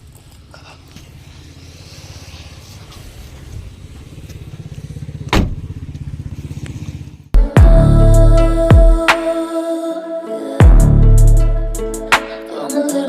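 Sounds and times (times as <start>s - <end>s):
vehicle engine rumbling: 0.0s - 8.8s
music with deep bass hit: 7.4s - 9.3s, 10.6s - 12.3s.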